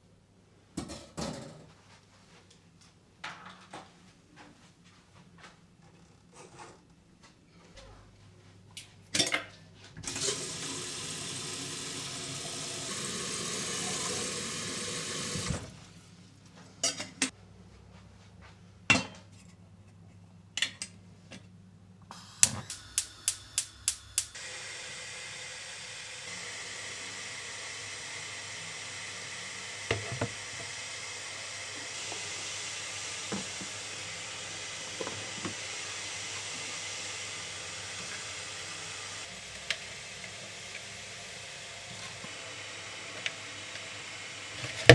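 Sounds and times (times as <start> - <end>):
water rushing: 10.1 - 15.6
quick clicks: 22.1 - 24.4
steady hiss: 22.1 - 24.4.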